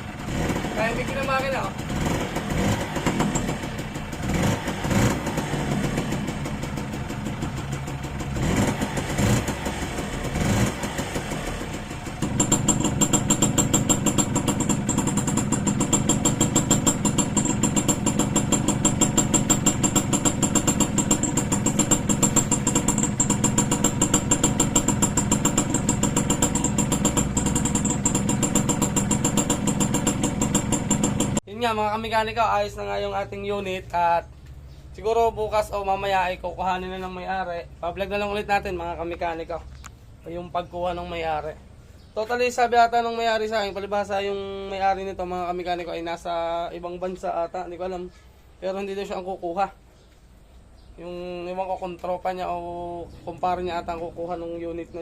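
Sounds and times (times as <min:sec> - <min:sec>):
motorcycle engine idling: 0:00.0 - 0:34.1.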